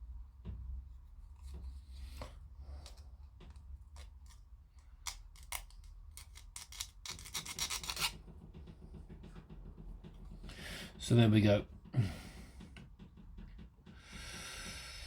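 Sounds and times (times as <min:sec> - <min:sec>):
hand tools clicking and scraping plastic: 0:02.7 - 0:10.4.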